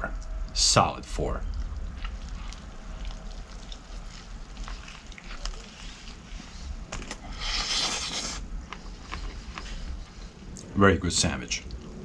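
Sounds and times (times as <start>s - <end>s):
crunchy chewing: 1.4s - 10.7s
loud crunching bite: 7.0s - 9.6s.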